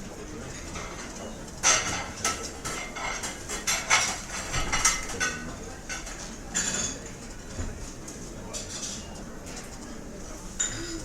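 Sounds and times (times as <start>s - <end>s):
restaurant murmur: 0.0s - 11.0s
dishes and cutlery clinking: 0.5s - 7.2s, 10.6s - 11.0s.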